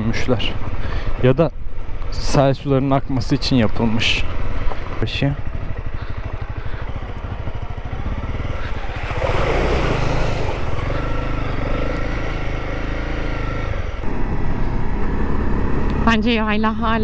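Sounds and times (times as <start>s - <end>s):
motorcycle engine pulsing: 3.0s - 17.0s
rush of noise: 6.9s - 12.6s.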